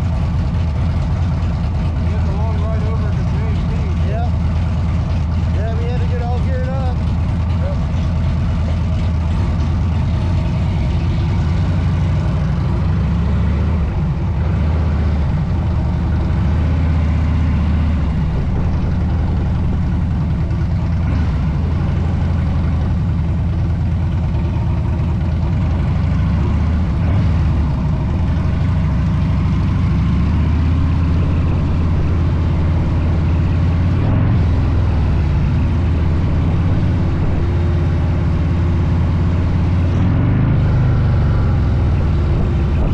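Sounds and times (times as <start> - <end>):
motorcycle engine cruising: 0.0 - 42.9
wind and road noise: 0.0 - 42.9.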